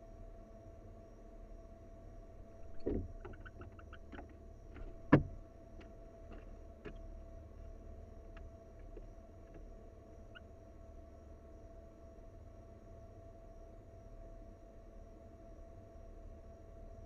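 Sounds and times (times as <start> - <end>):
steady low hum: 1.2 - 12.6
soft thud: 2.6 - 3.2, 4.8 - 5.4.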